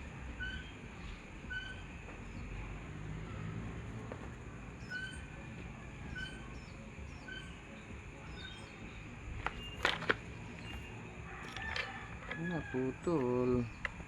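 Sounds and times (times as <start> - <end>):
background hum: 0.0 - 14.0
small bird chirping: 0.3 - 14.0.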